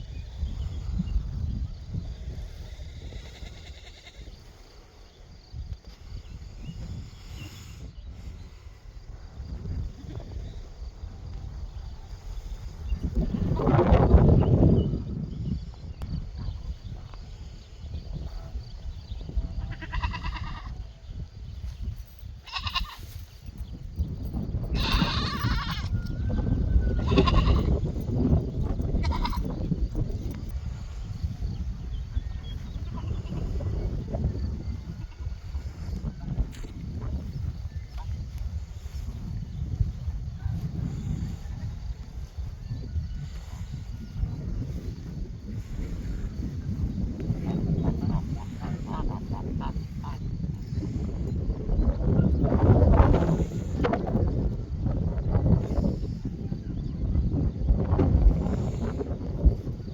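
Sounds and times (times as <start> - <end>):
farm animal bleating: 3.4 - 4.4, 19.6 - 20.8, 22.4 - 23.2, 24.7 - 26.0, 26.9 - 28.0, 29.0 - 29.6, 32.8 - 33.6
rough noisy animal call: 26.7 - 27.8.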